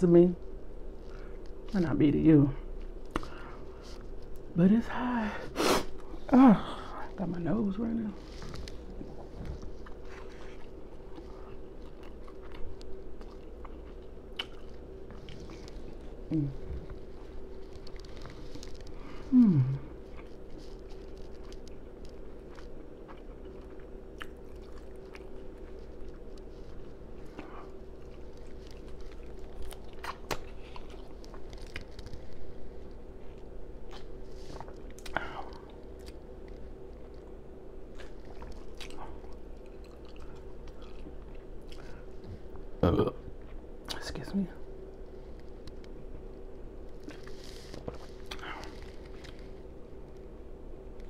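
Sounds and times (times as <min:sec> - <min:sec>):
person chewing and smacking: 0:02.8 - 0:03.4, 0:08.3 - 0:42.7, 0:46.9 - 0:51.0
crunching fried food: 0:08.2 - 0:42.5, 0:45.2 - 0:51.0.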